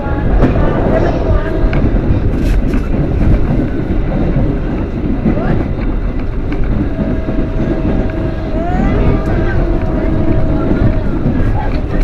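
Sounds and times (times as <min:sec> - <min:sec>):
steady high tone: 0:00.0 - 0:03.6, 0:06.3 - 0:12.0
train rumbling on rails: 0:00.0 - 0:12.0.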